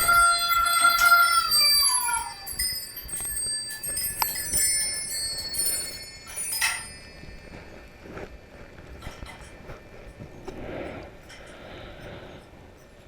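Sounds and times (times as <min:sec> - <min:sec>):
metal chimes ringing: 0:00.0 - 0:08.2.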